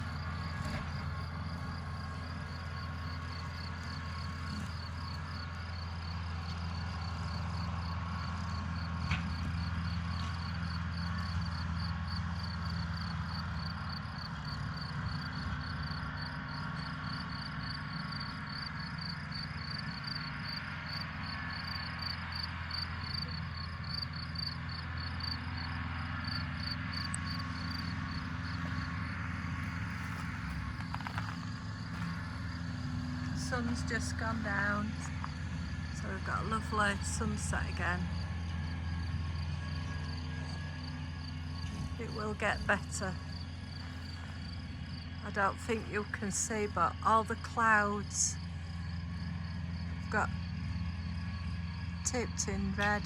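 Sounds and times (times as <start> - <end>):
crickets chirping: 0.0 - 36.2, 38.1 - 41.7, 43.1 - 45.2, 48.4 - 52.6
distant tractor engine drone: 0.0 - 53.0.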